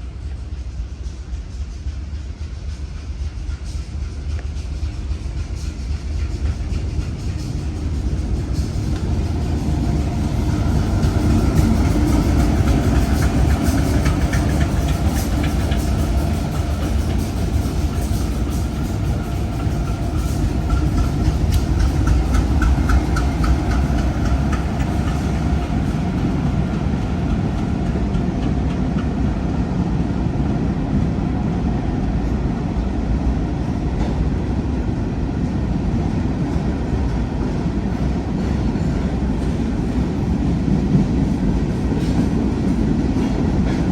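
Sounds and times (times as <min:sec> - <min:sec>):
freight train rumbling: 0:00.0 - 0:43.9
wheels clicking over rail joints: 0:06.8 - 0:29.1.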